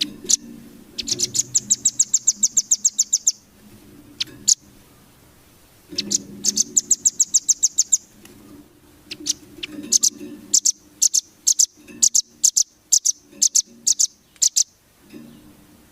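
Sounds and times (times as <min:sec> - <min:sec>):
bird trilling high chips: 0:00.0 - 0:03.4, 0:06.0 - 0:08.1, 0:09.1 - 0:14.7.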